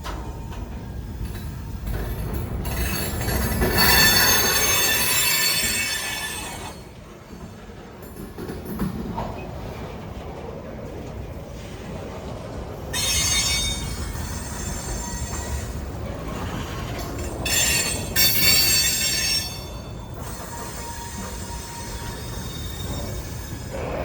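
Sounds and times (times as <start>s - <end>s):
train rumble: 0.0s - 24.0s
train wheels squealing: 2.6s - 7.6s, 12.9s - 24.0s.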